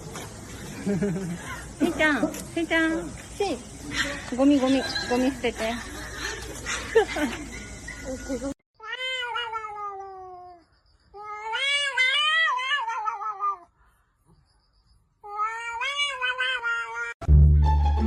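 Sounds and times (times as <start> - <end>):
cat yowling: 8.8 - 10.6, 11.2 - 13.7, 15.2 - 17.2.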